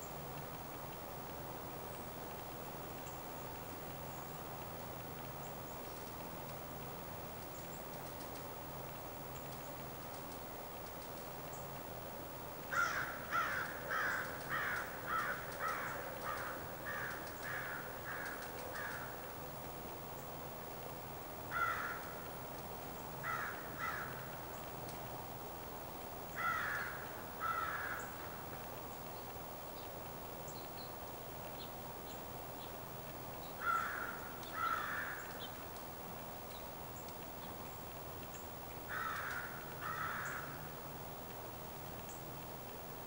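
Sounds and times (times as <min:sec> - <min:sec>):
outdoor background hiss: 0:00.0 - 0:43.0
small birds chirping: 0:01.8 - 0:11.9, 0:12.5 - 0:40.8, 0:41.9 - 0:42.5
bird calling in pairs: 0:12.7 - 0:19.2, 0:38.9 - 0:40.6.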